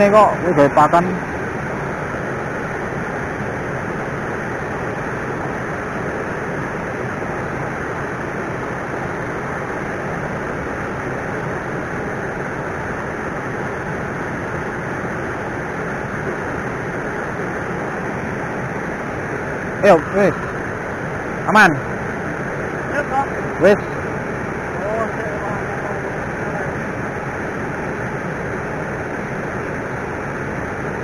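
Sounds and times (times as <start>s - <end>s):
river water rushing: 0.0s - 31.0s.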